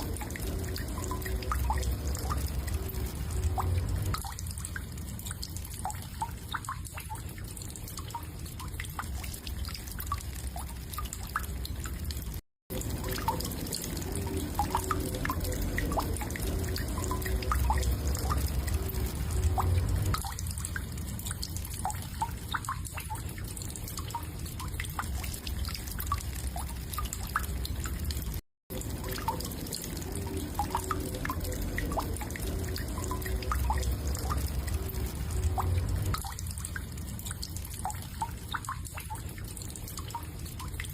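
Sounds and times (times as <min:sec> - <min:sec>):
low rumble: 0:00.0 - 0:04.7, 0:14.1 - 0:21.2, 0:30.1 - 0:37.2.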